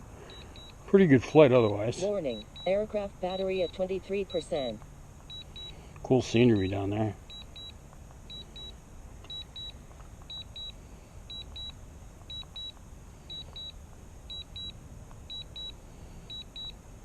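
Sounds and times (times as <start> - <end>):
faint steady hiss: 0.0 - 17.0
short high beeps: 5.3 - 5.8, 6.5 - 11.7.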